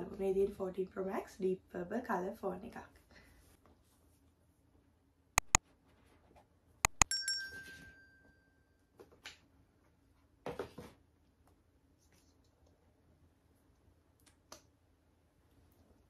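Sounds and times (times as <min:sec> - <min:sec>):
sharp clicks: 0:05.4 - 0:05.6, 0:06.9 - 0:07.1
ringing clink: 0:06.9 - 0:08.5.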